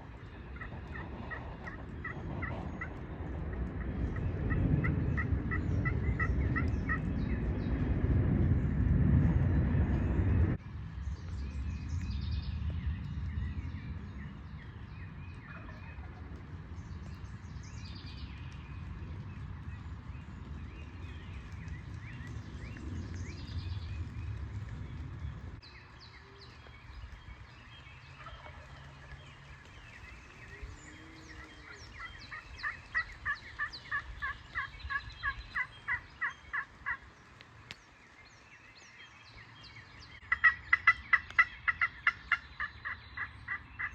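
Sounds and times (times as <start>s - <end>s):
low rumble: 0.0s - 43.9s
small birds chirping: 0.0s - 43.9s
turkey calling: 0.5s - 2.9s, 15.5s - 16.2s, 28.2s - 28.9s, 31.4s - 37.0s, 40.3s - 43.9s.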